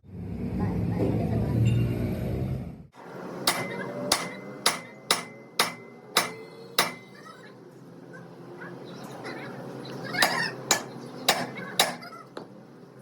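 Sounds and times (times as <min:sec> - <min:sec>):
hammer striking metal: 0:03.4 - 0:07.2, 0:10.2 - 0:12.1.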